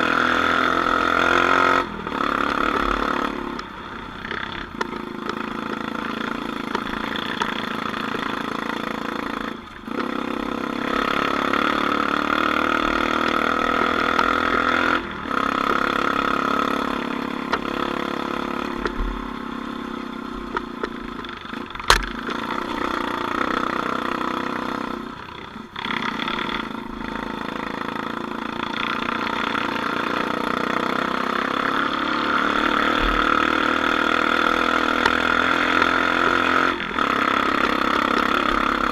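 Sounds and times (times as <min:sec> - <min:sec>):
off-road vehicle engine under load: 0:00.0 - 0:38.9
sharp knock: 0:21.9 - 0:22.2.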